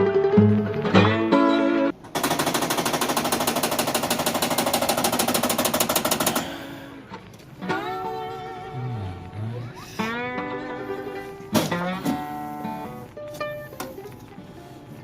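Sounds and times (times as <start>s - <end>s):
guitar music: 0.0s - 2.0s, 6.9s - 15.0s.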